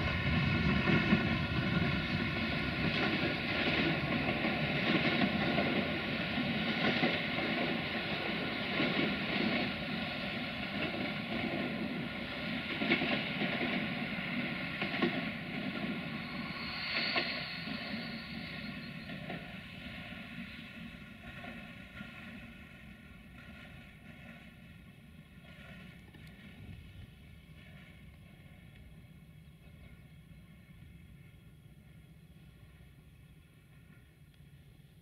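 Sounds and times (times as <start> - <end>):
train wheels rumbling on rails: 0.0 - 35.0
high-pitched wheel squeal: 15.7 - 19.8.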